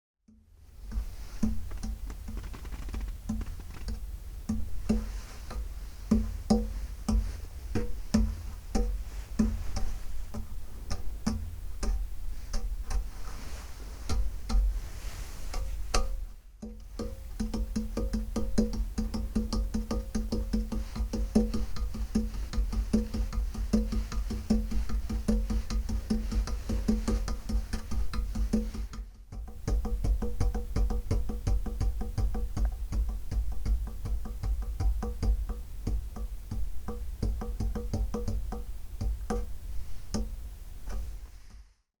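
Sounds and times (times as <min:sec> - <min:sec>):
deep steady bass: 0:00.4 - 0:13.2
rapid clicking percussion: 0:00.9 - 0:13.2, 0:15.5 - 0:39.5.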